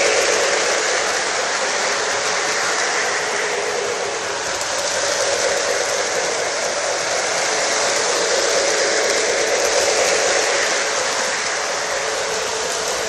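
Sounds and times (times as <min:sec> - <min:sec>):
toy train rushing on track: 0:00.0 - 0:13.0.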